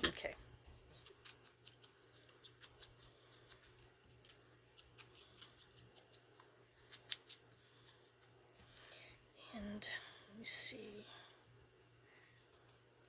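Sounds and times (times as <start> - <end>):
scissors cutting paper: 0.9 - 8.7.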